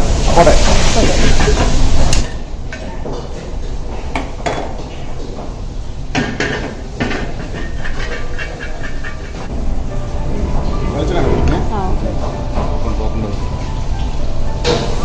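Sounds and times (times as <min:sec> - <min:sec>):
pots and pans clinking: 0:00.4 - 0:09.5, 0:12.2 - 0:15.0.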